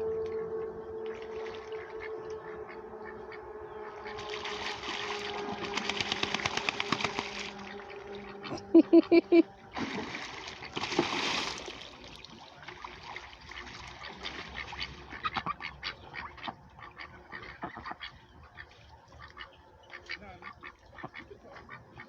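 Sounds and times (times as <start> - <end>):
ducks quacking: 1.3 - 11.0, 12.6 - 22.0.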